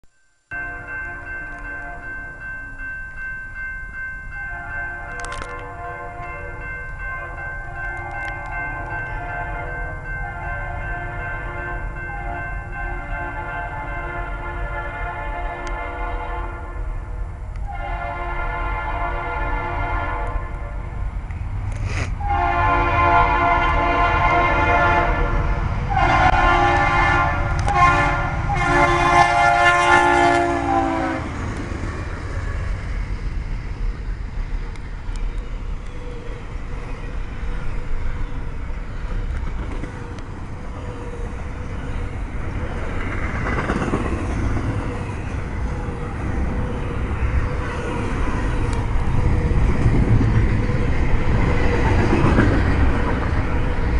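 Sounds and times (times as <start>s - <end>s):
train wheels rumbling on rails: 0.7s - 53.9s
locomotive air horn blasts: 4.5s - 17.0s, 17.6s - 20.8s, 22.2s - 31.4s.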